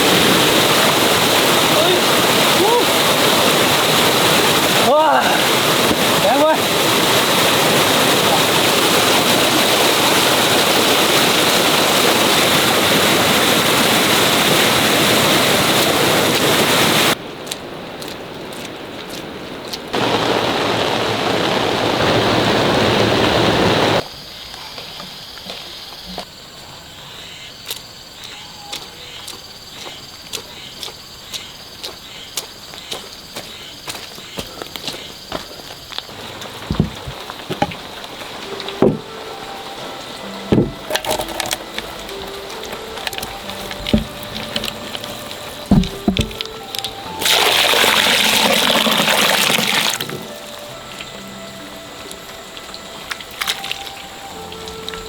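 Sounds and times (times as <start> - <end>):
rushing water: 0.0 - 24.0, 28.7 - 55.0
insects chirring: 19.9 - 55.0.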